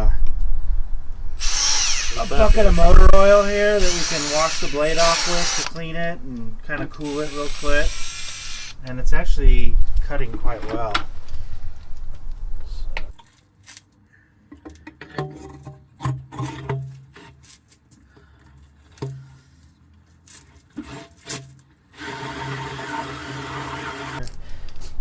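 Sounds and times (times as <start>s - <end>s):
drill cutting through metal: 1.4s - 5.8s, 7.0s - 8.8s.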